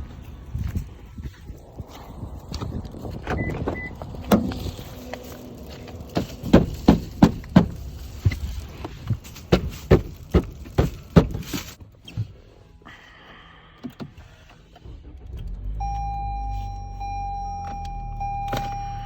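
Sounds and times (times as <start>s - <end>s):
car engine running: 0.0s - 11.7s.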